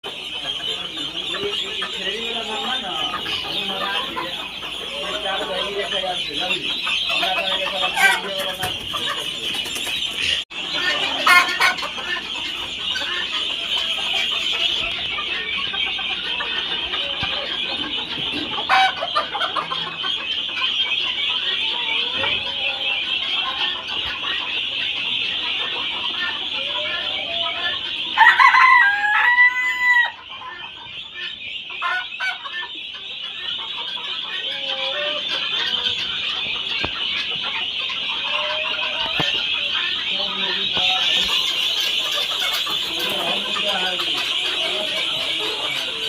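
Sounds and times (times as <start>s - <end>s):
flock of poultry clucking: 0.0s - 46.0s
loud poultry call: 0.0s - 46.0s
rooster crowing: 28.2s - 30.2s.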